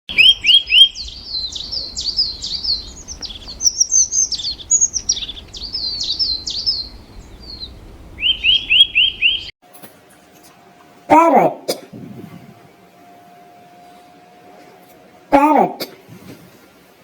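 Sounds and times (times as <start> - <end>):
birdsong: 0.1 - 9.6.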